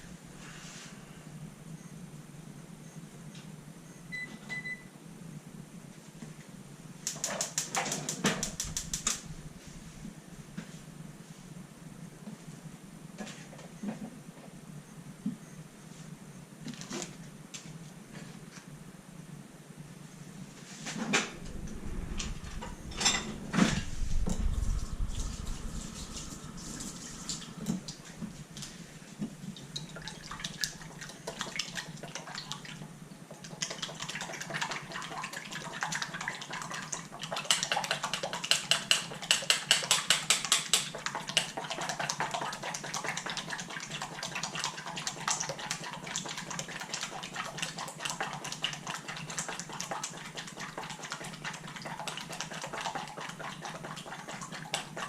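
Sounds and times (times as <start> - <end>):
rapid rubbing and splashing: 21.1 - 28.8.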